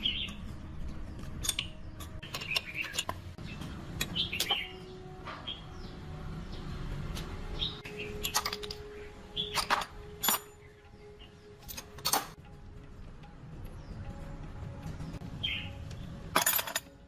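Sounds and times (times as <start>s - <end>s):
birds chirping: 0.0s - 12.4s, 13.0s - 16.3s
sharp clicks and clinks: 8.2s - 8.9s, 11.6s - 12.4s.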